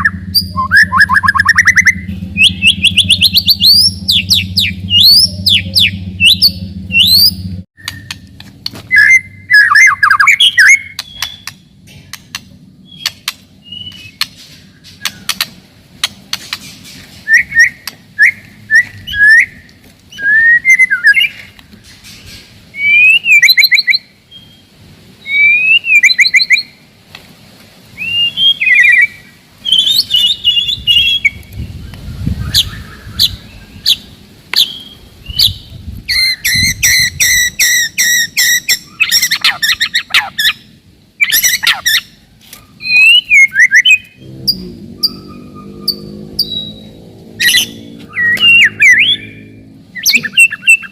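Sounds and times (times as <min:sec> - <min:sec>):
bird singing whistled phrases: 0:00.0 - 0:08.2, 0:08.9 - 0:11.7, 0:12.8 - 0:14.2, 0:17.2 - 0:21.4, 0:22.7 - 0:26.7, 0:28.0 - 0:31.5, 0:42.8 - 0:44.2, 0:45.0 - 0:50.9.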